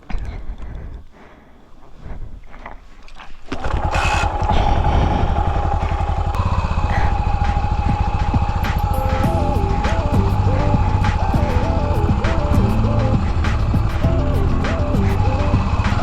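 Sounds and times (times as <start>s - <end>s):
motorcycle engine running: 3.6s - 16.0s.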